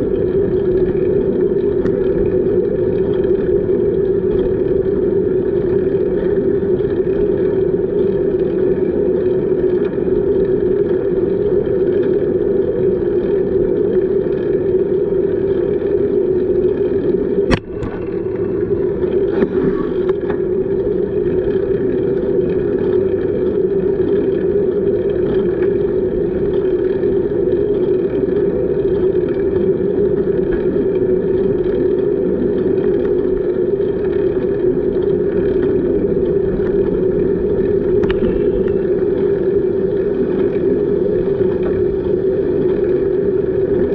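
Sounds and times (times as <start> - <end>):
bicycle tyres rolling: 17.4 - 43.9
sharp click: 17.5 - 18.0.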